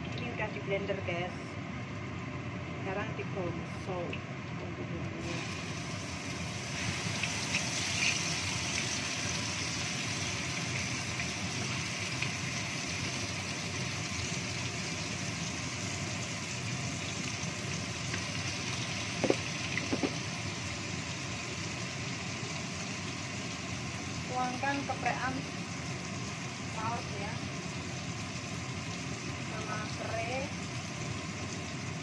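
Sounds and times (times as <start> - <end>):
paste sizzling in oil: 5.2 - 32.0
sharp knocks: 19.2 - 20.2.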